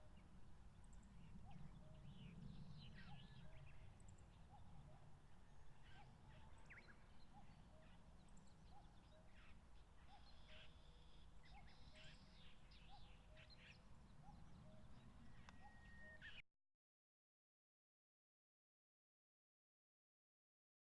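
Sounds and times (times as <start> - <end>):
low wind rumble: 0.1 - 8.7
distant cuckoo calling: 2.9 - 16.4
small birds chirping: 5.8 - 16.4.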